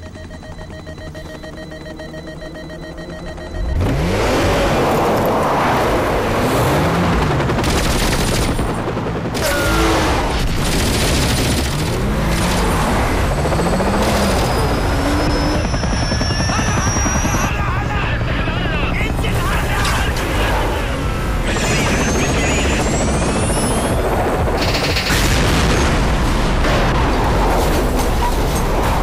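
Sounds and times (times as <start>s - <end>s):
car engine revving hard: 3.6s - 7.1s
rapid gunfire: 7.2s - 12.8s, 24.4s - 25.6s.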